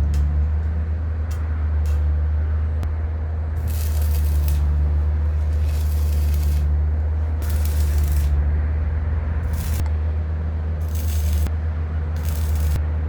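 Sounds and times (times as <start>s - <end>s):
steady low hum: 0.0s - 13.0s
welding crackling hiss: 3.6s - 8.4s, 9.4s - 9.9s, 10.8s - 11.5s, 12.2s - 12.8s.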